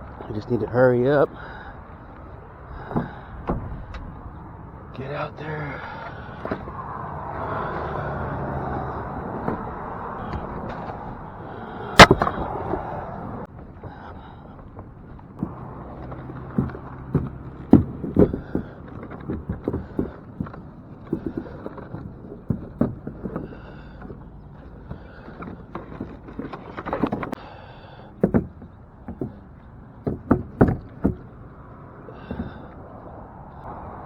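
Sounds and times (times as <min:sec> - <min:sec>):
fishing gear knocking and clunking: 0:02.5 - 0:04.6, 0:05.8 - 0:13.0, 0:14.7 - 0:27.4, 0:28.0 - 0:33.0.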